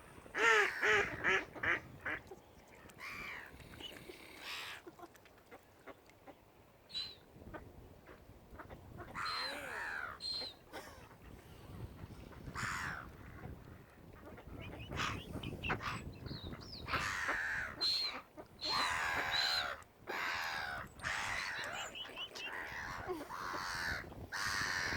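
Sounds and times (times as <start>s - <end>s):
waterbirds calling harshly: 0.0s - 7.3s, 8.6s - 24.9s.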